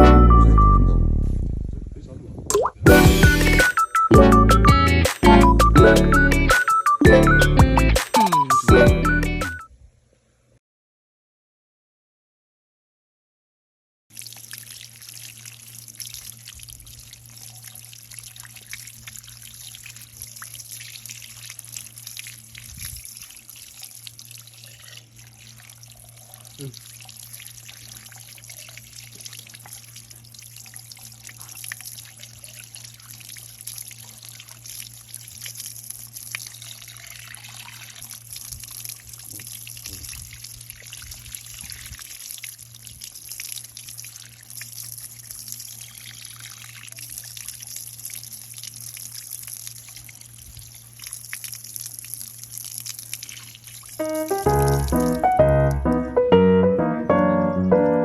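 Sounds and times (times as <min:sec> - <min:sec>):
water trickling and bubbling: 0:14.1 - 0:56.0.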